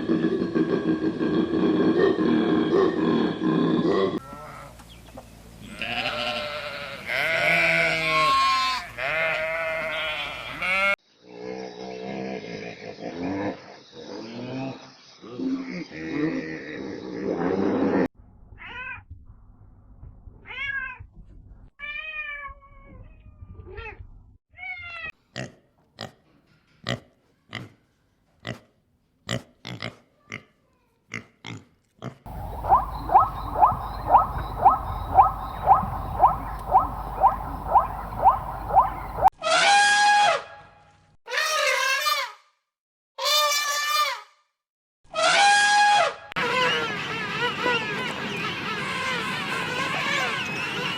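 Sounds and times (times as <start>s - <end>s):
long animal cry: 32.3s - 40.2s
quick repeated animal call: 32.3s - 40.4s.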